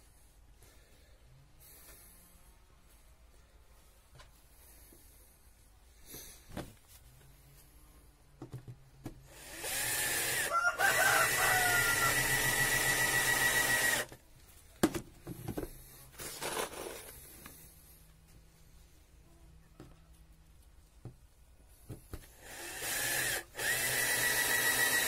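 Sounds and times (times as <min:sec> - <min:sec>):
power tool running: 0:09.3 - 0:14.1, 0:22.4 - 0:25.0.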